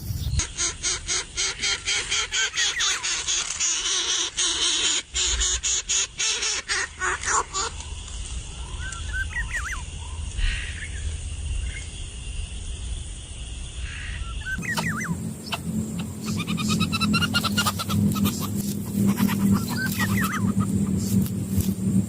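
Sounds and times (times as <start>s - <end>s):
low steady rumble: 7.8s - 22.0s
nestlings squeaking: 14.5s - 22.0s.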